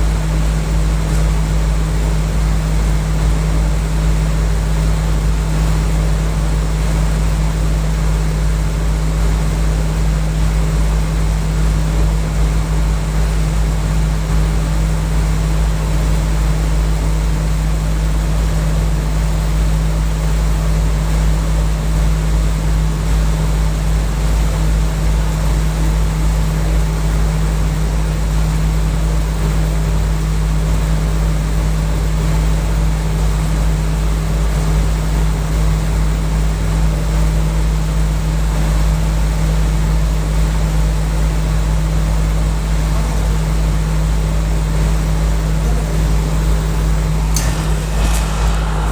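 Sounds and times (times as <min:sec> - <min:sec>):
air conditioning unit humming: 0:42.4 - 0:48.9.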